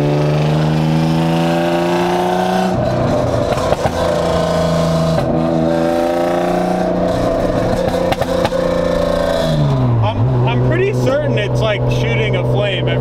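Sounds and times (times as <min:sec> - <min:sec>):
car engine accelerating through gears: 0:00.0 - 0:13.0
exhaust pops: 0:02.7 - 0:05.7, 0:07.0 - 0:11.1.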